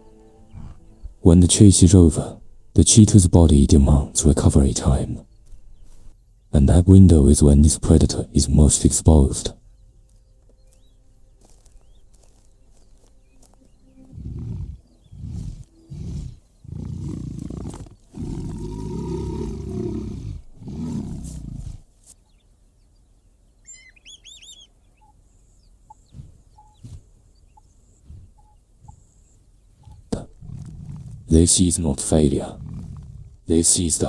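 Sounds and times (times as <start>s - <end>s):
big cat growling: 14.1s - 21.9s, 29.9s - 33.5s
high bird chirps: 22.2s - 30.1s.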